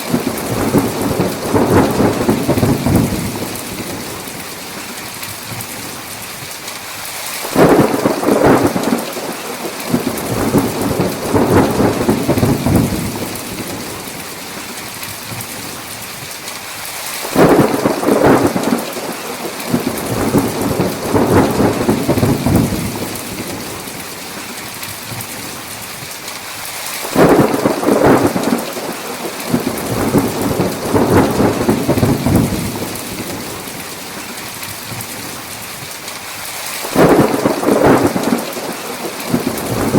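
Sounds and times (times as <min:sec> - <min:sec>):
thunder rumbling: 0:00.0 - 0:05.7, 0:07.4 - 0:14.4, 0:17.2 - 0:24.0, 0:27.0 - 0:35.3, 0:36.8 - 0:39.9
heavy rain: 0:00.0 - 0:39.9.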